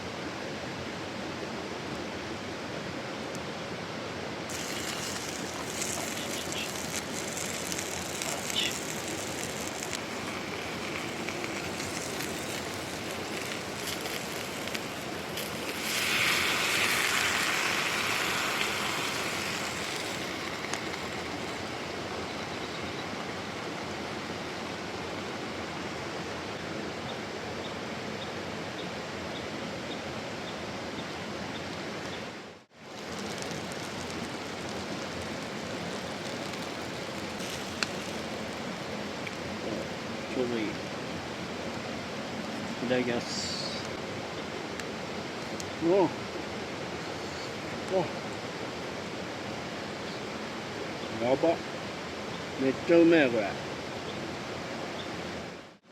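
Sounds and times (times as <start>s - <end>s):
mountain stream rushing: 0.0s - 55.9s.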